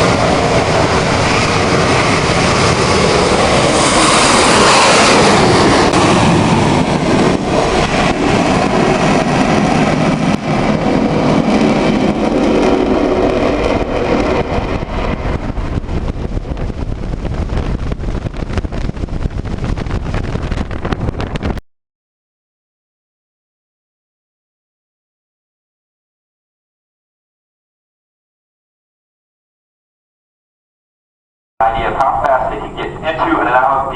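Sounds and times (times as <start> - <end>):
jet engine roar: 0.0 - 21.6, 31.6 - 33.9.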